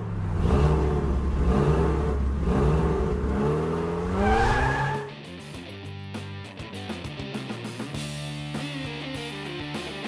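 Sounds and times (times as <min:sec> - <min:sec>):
car engine revving: 0:00.0 - 0:05.2.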